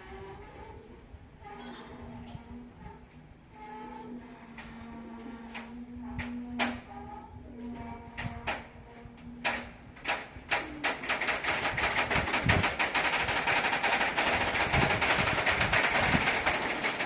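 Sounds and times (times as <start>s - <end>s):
train wheels clattering over rails: 9.4s - 17.0s.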